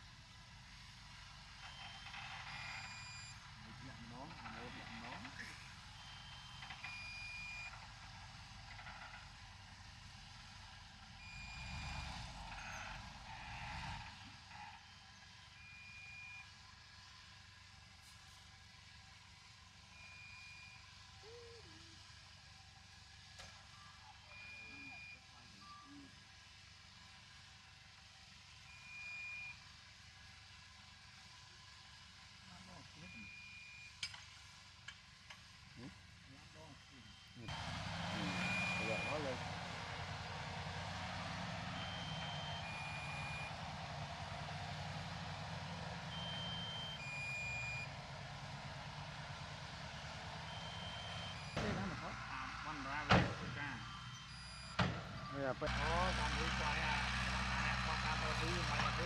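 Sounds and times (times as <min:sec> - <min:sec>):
diesel engine running: 0:00.0 - 0:59.0
distant construction machinery rumble: 0:00.0 - 0:59.0
two-tone reversing alarm: 0:01.6 - 0:07.9, 0:11.2 - 0:16.6, 0:23.6 - 0:26.1, 0:28.6 - 0:29.6, 0:35.8 - 0:59.0
long high beeps: 0:38.1 - 0:39.4.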